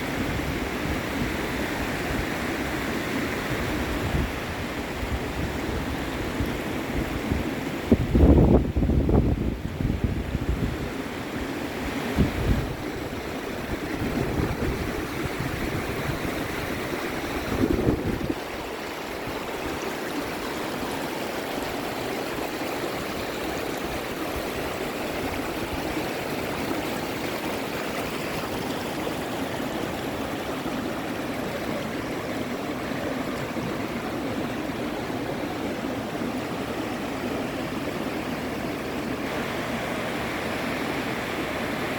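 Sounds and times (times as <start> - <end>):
river water rushing: 0.0 - 41.9
wind buffeting microphone: 3.8 - 10.9, 11.8 - 34.2.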